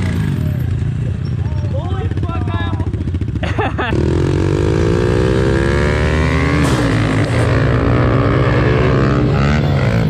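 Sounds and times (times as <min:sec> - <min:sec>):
motorbike engine accelerating: 0:00.0 - 0:10.0.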